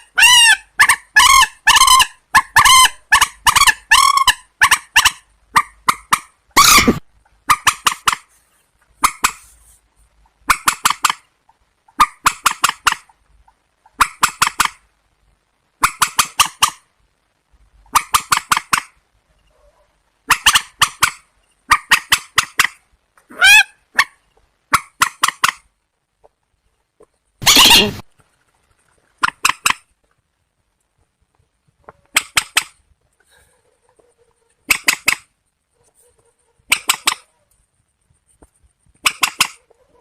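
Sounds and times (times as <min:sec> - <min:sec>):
rail birds calling harshly: 0:27.4 - 0:28.0.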